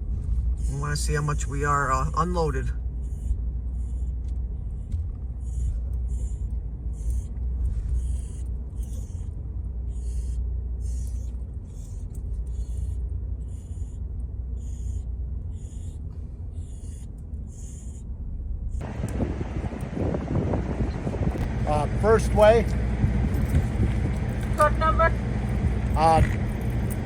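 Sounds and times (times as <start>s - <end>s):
truck engine rumble: 18.1s - 27.0s
loud wide noise: 18.8s - 27.0s.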